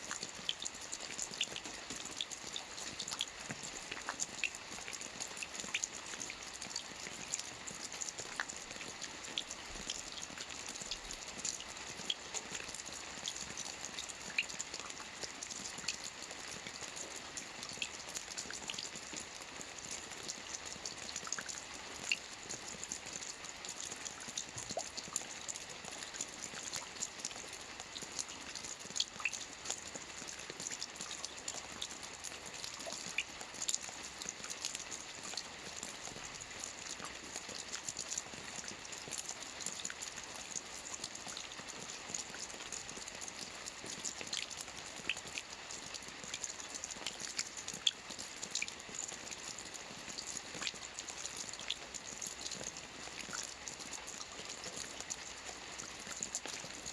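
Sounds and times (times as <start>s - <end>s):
rain falling on water: 0.0s - 56.9s.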